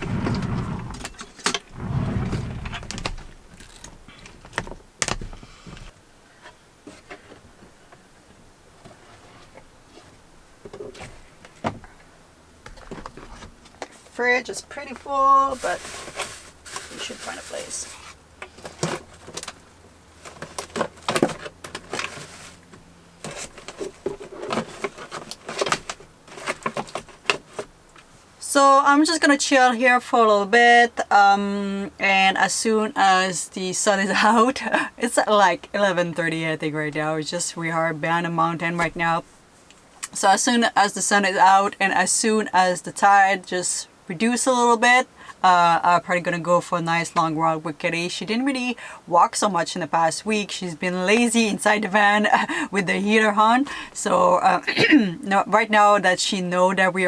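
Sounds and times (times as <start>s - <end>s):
low rubbing or sliding rumble: 0.0s - 3.5s.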